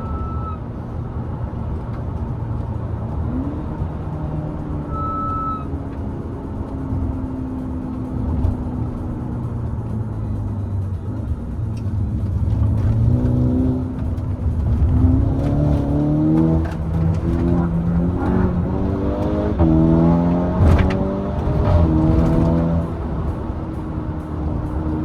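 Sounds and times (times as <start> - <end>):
car engine accelerating: 0.0 - 25.0
exhaust cracks: 12.1 - 25.0.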